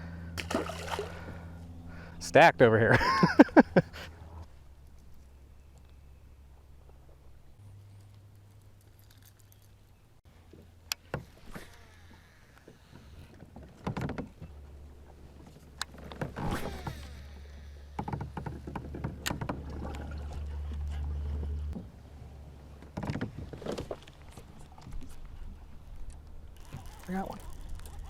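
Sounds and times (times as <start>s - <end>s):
fishing gear knocking and rattling: 18.0s - 20.0s, 26.5s - 28.0s.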